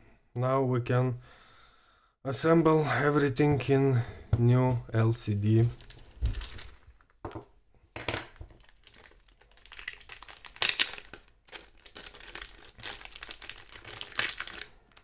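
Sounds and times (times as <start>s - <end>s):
plastic packaging crinkling: 5.4s - 7.3s, 8.3s - 15.0s.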